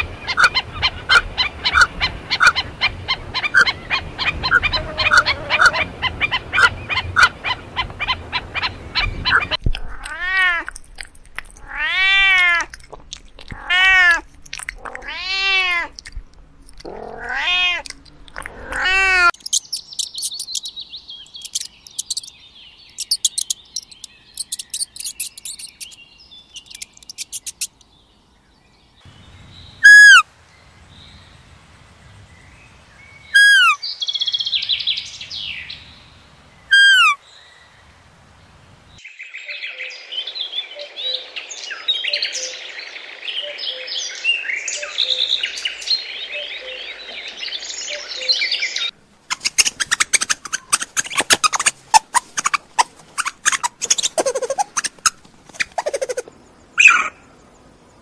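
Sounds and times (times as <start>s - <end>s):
drawn-out rising and falling calls: 0.0s - 9.6s, 18.5s - 27.8s, 29.1s - 39.0s, 40.2s - 57.3s
rapid short animal calls: 3.5s - 9.6s, 49.3s - 57.1s
fast high-pitched squeaks: 21.3s - 22.3s, 22.9s - 26.0s, 26.6s - 27.8s, 49.3s - 56.3s.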